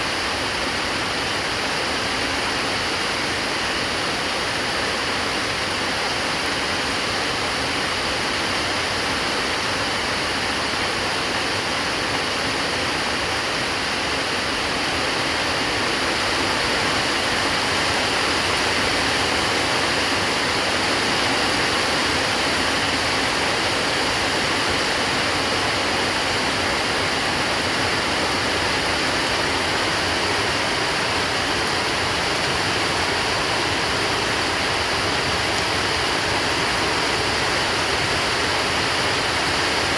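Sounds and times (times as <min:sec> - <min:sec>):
heavy rain pouring: 0:00.1 - 0:39.9.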